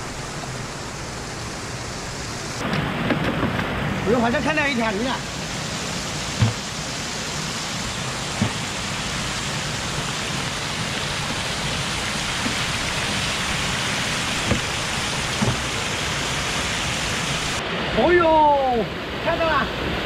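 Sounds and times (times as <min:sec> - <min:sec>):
waterfall rushing: 0:00.0 - 0:20.0
dull knocks: 0:06.4 - 0:06.7, 0:08.4 - 0:08.6, 0:14.4 - 0:15.8.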